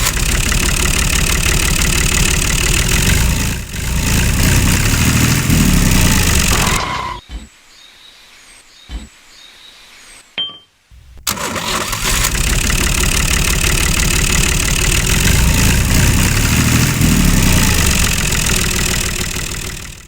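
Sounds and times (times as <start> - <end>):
engine running loud: 0.0 - 6.9, 11.0 - 20.0
faint bird chirps: 6.9 - 10.3
short thumps: 10.9 - 11.4.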